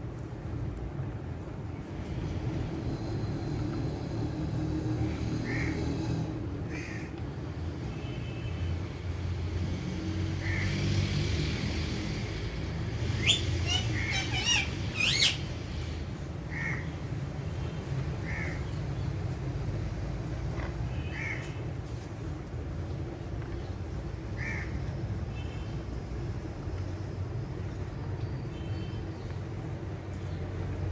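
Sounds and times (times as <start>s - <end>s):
parakeets chirping and squawking: 13.2s - 15.5s.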